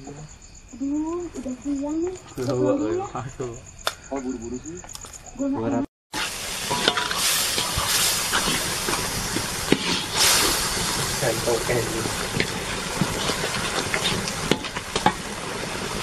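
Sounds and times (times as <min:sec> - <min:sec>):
men talking: 0:02.4 - 0:04.8, 0:11.2 - 0:12.2
food sizzling in a wok: 0:06.1 - 0:16.0.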